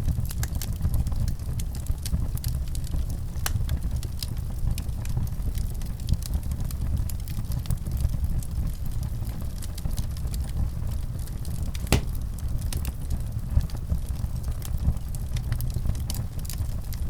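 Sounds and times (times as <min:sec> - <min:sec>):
wood fire crackling: 0:11.7 - 0:12.4
sharp pop from fire: 0:11.8 - 0:12.2.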